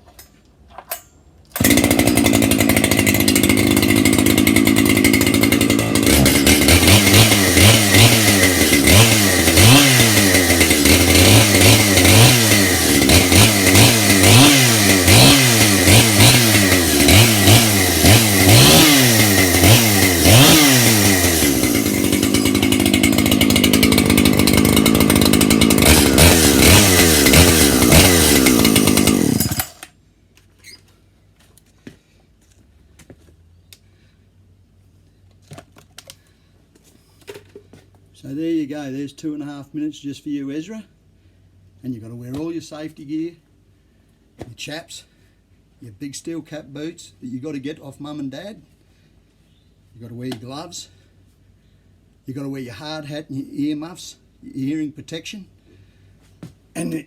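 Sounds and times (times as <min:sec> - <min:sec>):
chainsaw idling and revving: 0:01.6 - 0:30.0.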